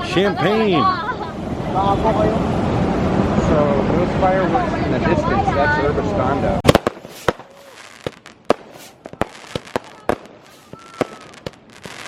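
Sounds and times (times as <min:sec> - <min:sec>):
fireworks and firecrackers banging: 0:06.6 - 0:12.0.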